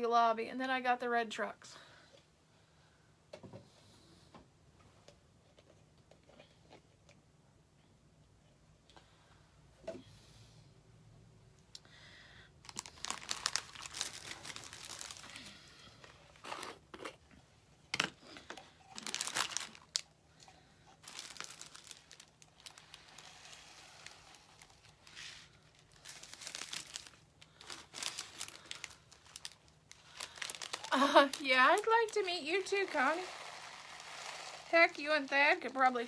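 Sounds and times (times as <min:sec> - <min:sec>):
crinkling and rustling of packaging: 0:12.6 - 0:36.0.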